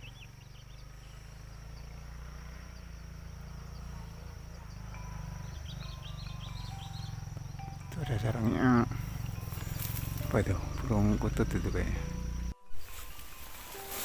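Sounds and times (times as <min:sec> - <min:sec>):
low steady rumble: 0:00.0 - 0:12.6
insects chirping with high buzz: 0:00.0 - 0:14.0.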